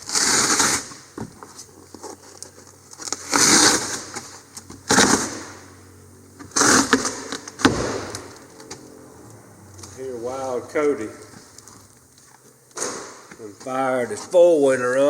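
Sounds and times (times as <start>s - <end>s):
carpet tearing: 0.0s - 5.6s, 6.4s - 8.9s.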